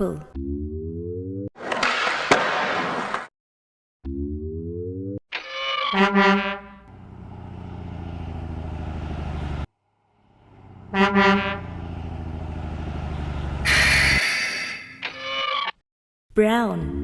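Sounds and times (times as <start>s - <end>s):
truck horn honking: 5.9s - 7.4s, 10.4s - 14.4s
truck engine running: 6.8s - 14.2s.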